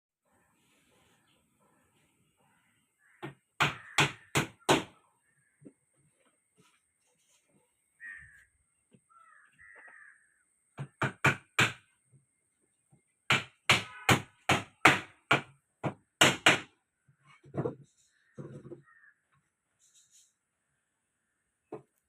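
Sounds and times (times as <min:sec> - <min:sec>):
small birds chirping: 0:00.2 - 0:11.4
crow cawing: 0:03.0 - 0:05.6, 0:08.0 - 0:08.5, 0:09.1 - 0:10.4, 0:18.8 - 0:19.2.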